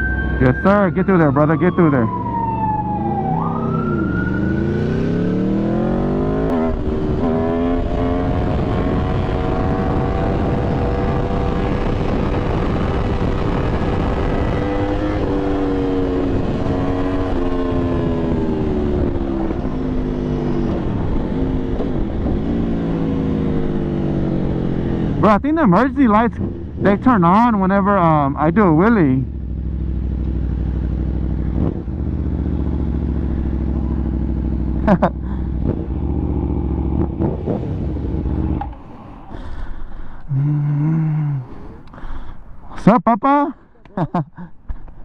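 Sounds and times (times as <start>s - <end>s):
siren wailing: 0.0s - 6.8s
motorcycle engine revving: 0.0s - 25.4s, 26.1s - 42.2s.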